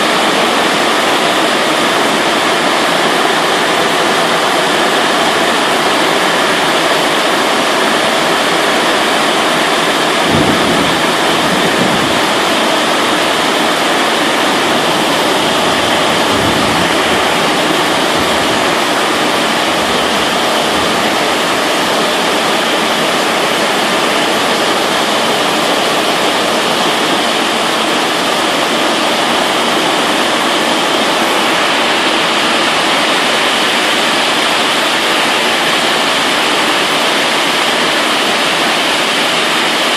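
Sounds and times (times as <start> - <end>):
heavy rain falling: 0.0 - 39.9
low rumbles of thunder: 10.2 - 12.7.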